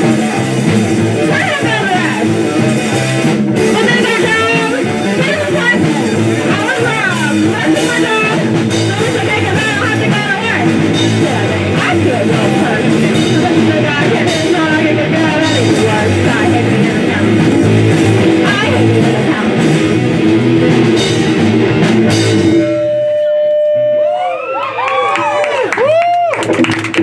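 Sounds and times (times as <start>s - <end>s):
live rock band playing: 0.0s - 24.2s
person singing: 1.1s - 2.6s, 3.6s - 21.8s.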